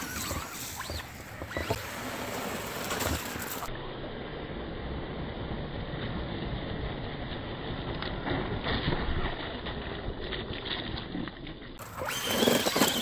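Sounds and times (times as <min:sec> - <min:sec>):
electric motors whining: 0:00.0 - 0:03.7, 0:11.8 - 0:13.0
churning mud: 0:11.7 - 0:13.0.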